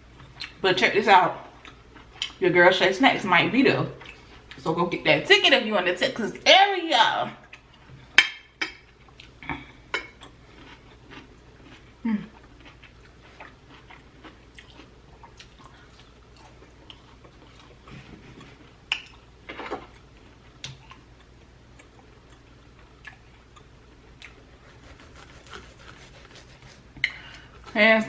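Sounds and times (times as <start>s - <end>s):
close chewing with wet mouth clicks: 10.2s - 17.8s.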